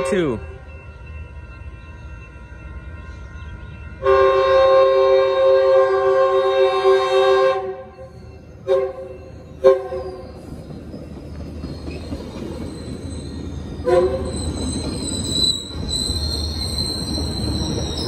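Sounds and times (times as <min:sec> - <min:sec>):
train rumbling: 0:00.0 - 0:18.0
train horn blasts: 0:04.0 - 0:08.0, 0:08.6 - 0:10.2, 0:13.8 - 0:14.3
high squeal of running gear: 0:09.2 - 0:18.0.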